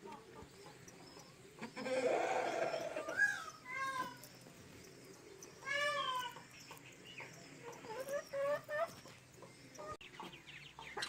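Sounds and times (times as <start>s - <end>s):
peafowl calling: 0.0s - 4.2s.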